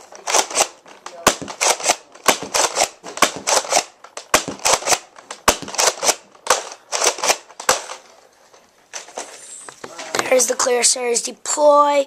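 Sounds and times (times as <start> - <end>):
toy blaster clacks and puffs: 0.1 - 8.0.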